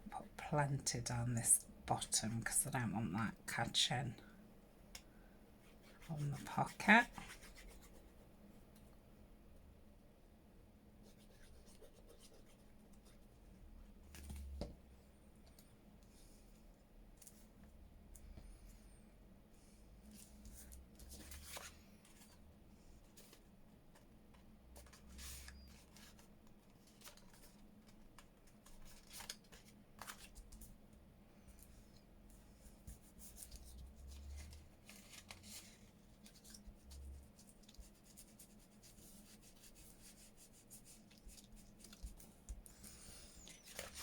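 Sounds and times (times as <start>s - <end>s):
paper and card rustling: 20.1s - 22.4s, 23.0s - 30.8s, 31.5s - 44.0s.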